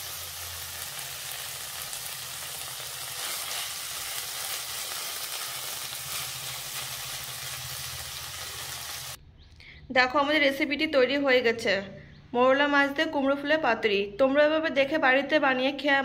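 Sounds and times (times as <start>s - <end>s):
fish sizzling in a pan: 0.0s - 9.2s.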